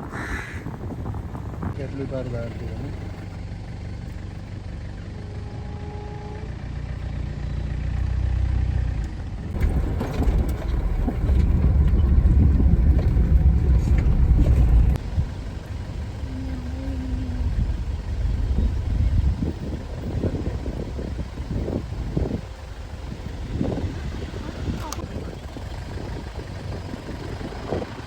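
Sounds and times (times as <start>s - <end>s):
jeep engine rumbling: 0.0s - 28.0s
rattles and knocks: 9.5s - 15.0s.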